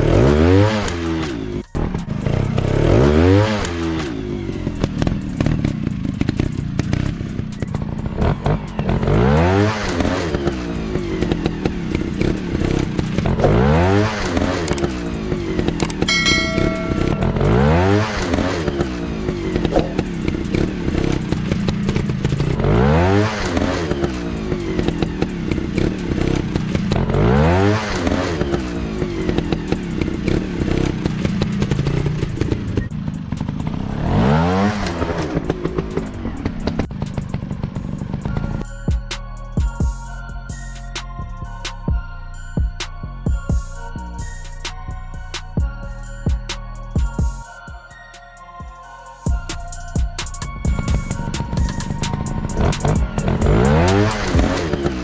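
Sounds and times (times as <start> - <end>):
motorcycle engines revving: 0.0 - 38.7, 49.3 - 55.0
high ringing tone: 16.1 - 19.1.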